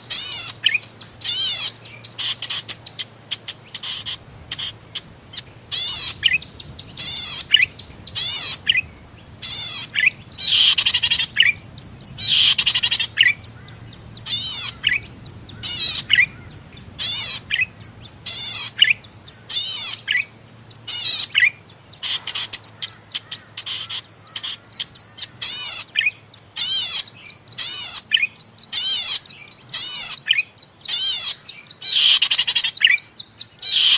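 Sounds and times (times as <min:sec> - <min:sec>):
bird calling sharp high notes: 0:05.4 - 0:22.6.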